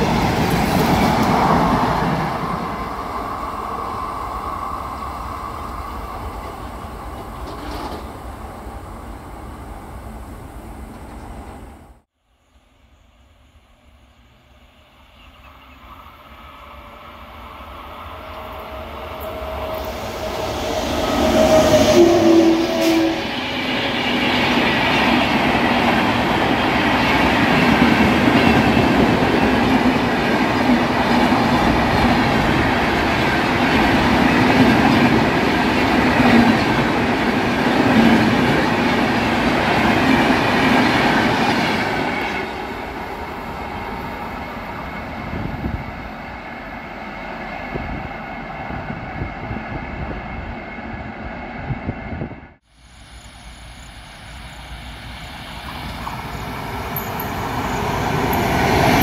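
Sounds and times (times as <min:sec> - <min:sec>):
rhythmic clatter of train wheels: 0:00.0 - 0:08.3, 0:53.0 - 0:59.0
train passing at speed: 0:00.0 - 0:59.0.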